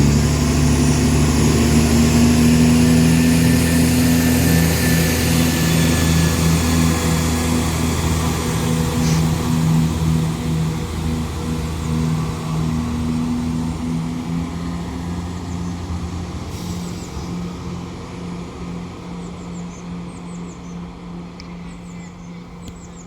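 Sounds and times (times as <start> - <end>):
diesel train engines running: 0.0 - 23.0
small birds chirping: 19.1 - 23.0.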